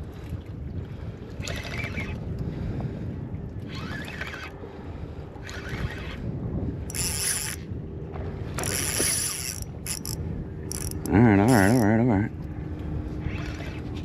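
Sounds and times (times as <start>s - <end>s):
wind buffeting microphone: 0.0s - 14.0s
fishing reel drag buzzing: 3.7s - 4.6s, 5.4s - 6.2s, 6.9s - 7.7s, 8.6s - 11.9s, 13.3s - 13.8s.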